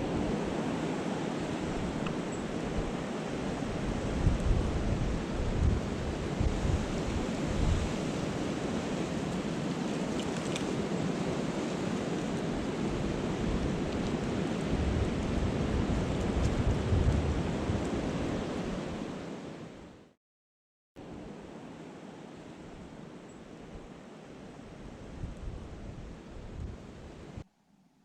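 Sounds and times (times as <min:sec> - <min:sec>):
wind gusts buffeting microphone: 0:00.0 - 0:19.5, 0:24.8 - 0:27.4
rushing snowstorm wind: 0:00.0 - 0:20.0, 0:23.7 - 0:27.4.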